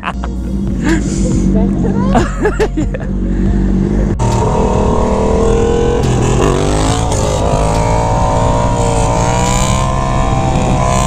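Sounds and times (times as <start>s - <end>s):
motorcycle engine at high revs: 3.6s - 11.0s.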